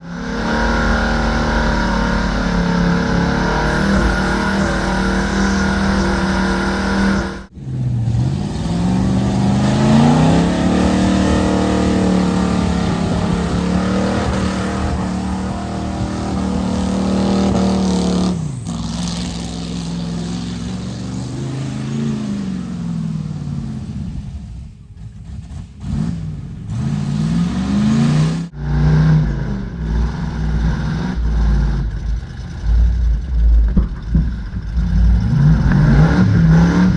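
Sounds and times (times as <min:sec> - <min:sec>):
truck engine revving: 0:00.0 - 0:36.9.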